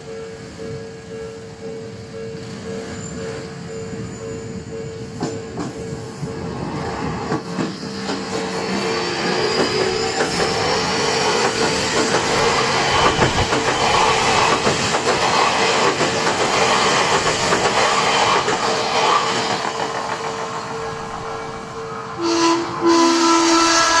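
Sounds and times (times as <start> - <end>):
level crossing warning bell: 0.0 - 6.6, 19.9 - 22.8
train wheels clattering over rails: 4.9 - 21.8.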